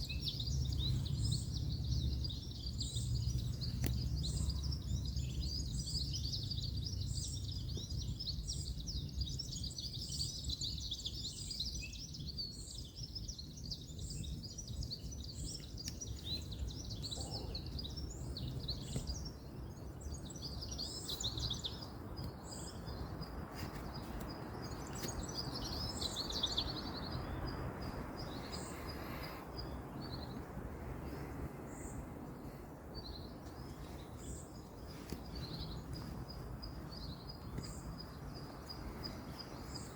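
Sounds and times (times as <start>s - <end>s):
small birds chirping: 0.0s - 39.9s
distant road traffic rumble: 14.7s - 39.9s.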